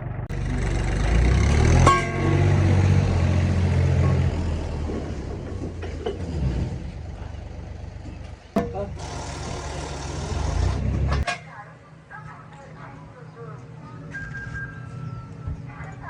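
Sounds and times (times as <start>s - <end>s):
bus engine revving: 0.0s - 8.0s, 8.6s - 11.2s.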